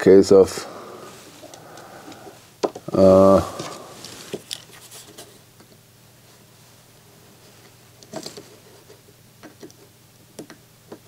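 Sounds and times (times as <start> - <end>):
low steady hum: 0.0 - 11.0
clicks and taps of small parts: 9.4 - 11.0.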